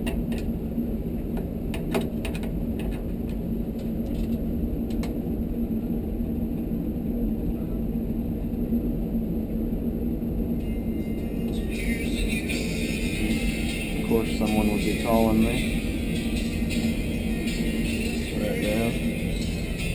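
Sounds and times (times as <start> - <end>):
low machine hum: 0.0 - 19.9.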